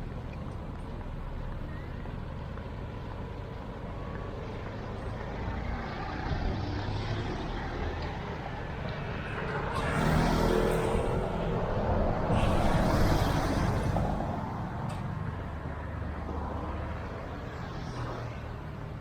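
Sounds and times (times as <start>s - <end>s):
steady traffic hum: 0.0s - 19.0s
vehicle engine passing close: 5.4s - 14.9s.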